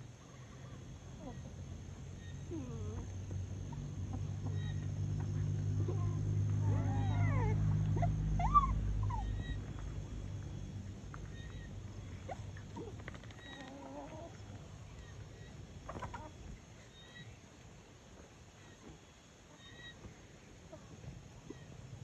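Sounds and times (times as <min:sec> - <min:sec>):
chickens calling: 0:00.0 - 0:22.0
low steady hum: 0:00.0 - 0:22.0.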